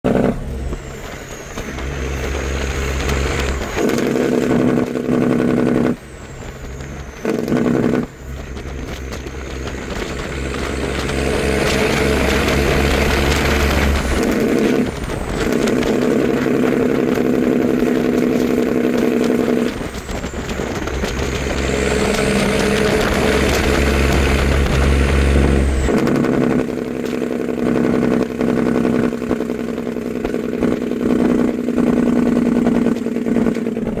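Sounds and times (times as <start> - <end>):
diesel truck engine running: 0.0 - 34.0.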